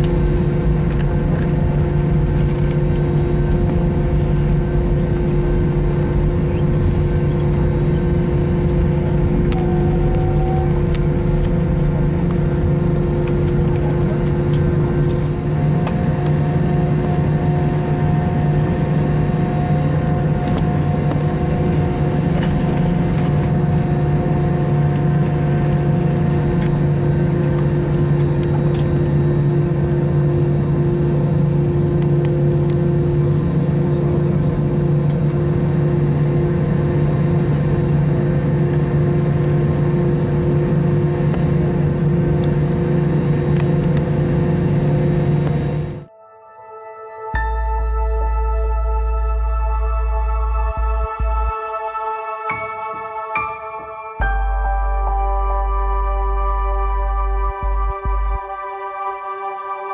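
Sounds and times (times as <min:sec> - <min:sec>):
airliner cabin engine drone: 0:00.0 - 0:59.9.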